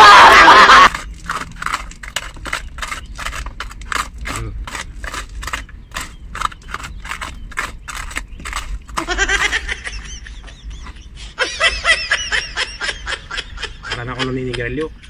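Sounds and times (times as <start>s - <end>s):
hand tool scraping gravel and concrete: 0.4s - 9.7s.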